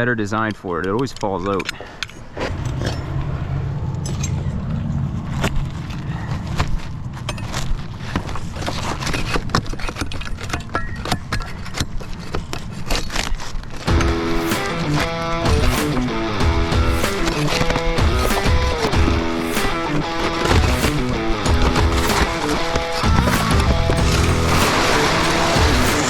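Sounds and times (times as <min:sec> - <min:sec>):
low motor hum: 0:02.4 - 0:07.1
tools knocking and scraping: 0:09.0 - 0:14.1
guitar music: 0:13.9 - 0:26.0.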